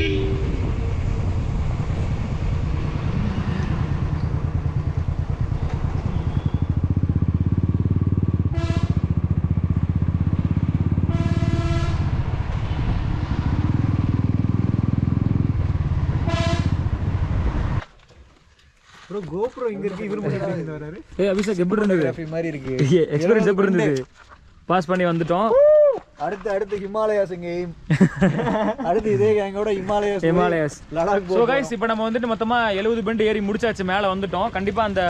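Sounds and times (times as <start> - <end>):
vehicle horn beeping: 0.0 - 0.7, 6.0 - 6.8, 8.5 - 9.1, 11.1 - 12.1, 16.2 - 16.8
motorcycle engine running: 2.1 - 12.4, 13.5 - 17.3.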